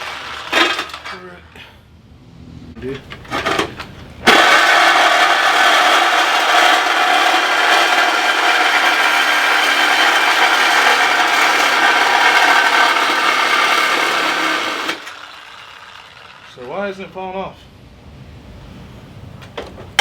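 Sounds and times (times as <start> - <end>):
power tool cutting: 0.0 - 1.0, 4.2 - 16.8.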